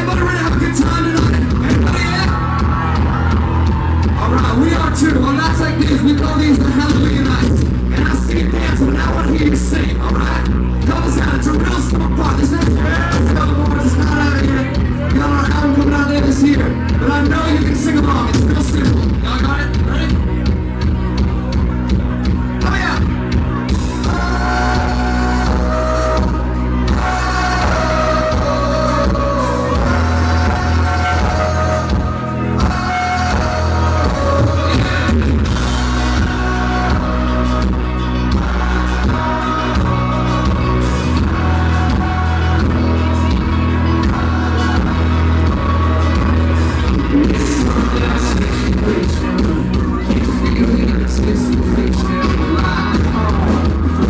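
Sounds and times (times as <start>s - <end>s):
live country band playing: 0.0s - 54.0s
person singing: 23.8s - 54.0s.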